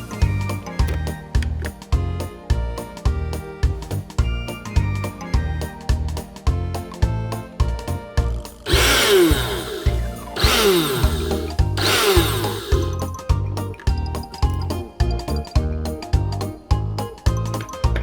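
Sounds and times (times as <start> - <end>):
background music with steady beat: 0.0 - 18.0
blender motor spinning: 8.7 - 13.0.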